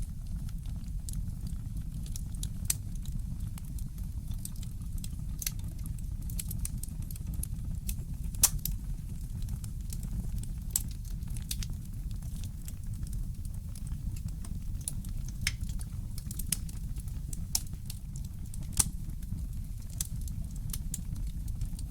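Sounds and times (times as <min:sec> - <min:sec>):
wood fire crackling: 0:00.0 - 0:21.9
fire pops: 0:04.4 - 0:21.9
steady low rumble: 0:07.1 - 0:21.9.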